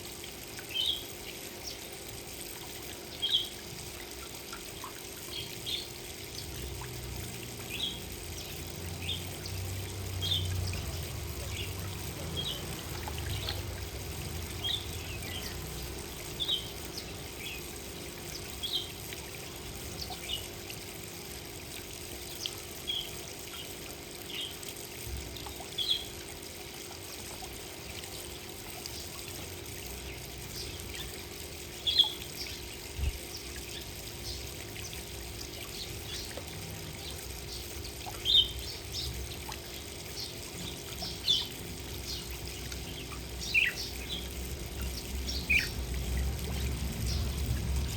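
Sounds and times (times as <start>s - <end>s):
trickling water: 0.0s - 47.9s
small birds chirping: 3.0s - 3.6s, 7.6s - 20.6s, 22.2s - 24.7s, 25.4s - 26.2s, 29.8s - 47.9s.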